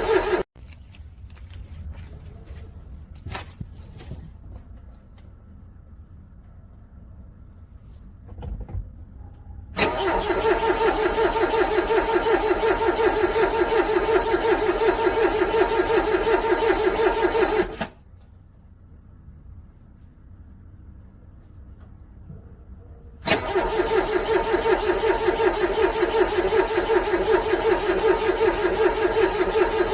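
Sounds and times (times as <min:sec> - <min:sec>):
car starter cranking engine: 0:00.0 - 0:00.5, 0:09.8 - 0:18.0, 0:23.2 - 0:29.9.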